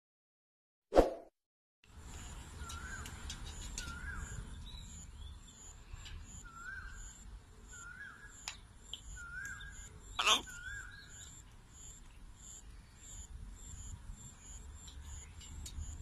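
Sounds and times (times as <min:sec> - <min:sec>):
bird chirps: 0:02.3 - 0:13.3.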